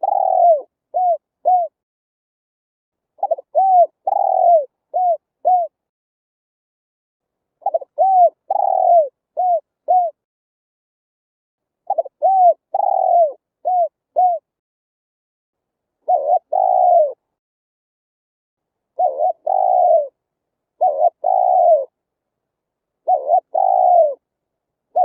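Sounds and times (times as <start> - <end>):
dove cooing: 0.0 - 1.8, 3.2 - 5.8, 7.6 - 10.2, 11.9 - 14.5, 16.0 - 17.2, 19.0 - 20.2, 20.8 - 22.0, 23.0 - 24.2.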